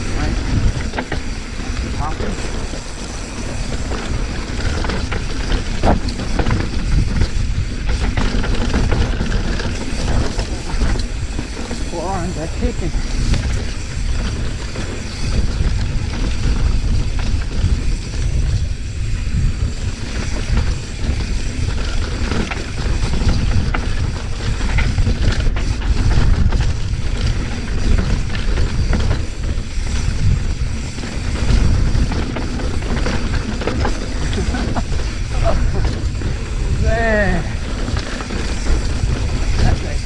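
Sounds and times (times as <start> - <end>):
heavy low rumble: 0.0 - 14.5
wind on microphone: 0.0 - 40.0.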